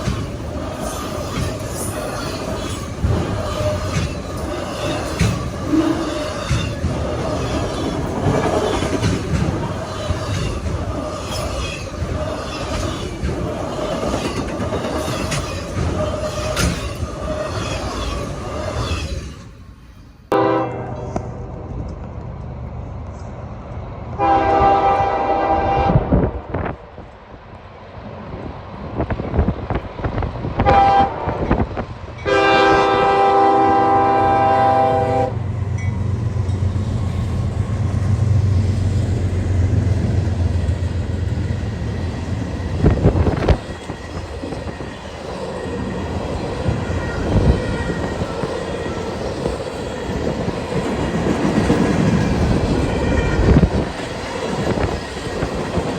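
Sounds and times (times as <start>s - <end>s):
wheels clattering on rail: 0.0s - 19.6s, 35.7s - 55.9s
locomotive air horn blasts: 20.3s - 21.4s, 24.2s - 26.2s, 30.6s - 31.5s, 32.2s - 35.4s.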